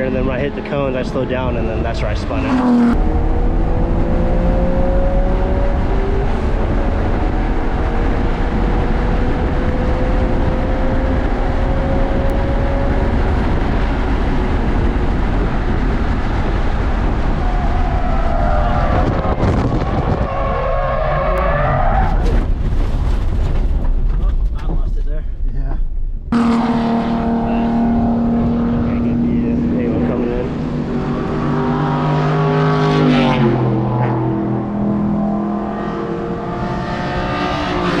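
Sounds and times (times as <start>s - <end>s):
distant race car engines: 0.0s - 22.0s, 26.3s - 38.0s
steady low rumble: 22.4s - 30.9s.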